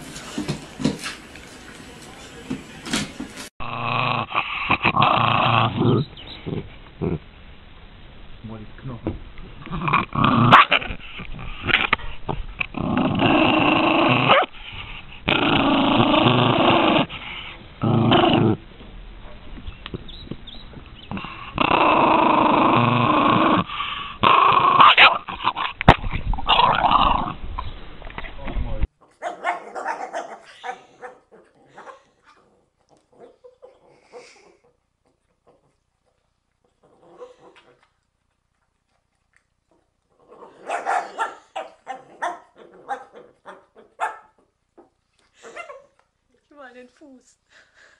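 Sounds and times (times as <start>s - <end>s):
dog growling: 3.6s - 7.2s, 9.4s - 18.6s, 21.0s - 25.8s, 26.4s - 27.4s, 36.6s - 37.9s, 39.7s - 44.0s.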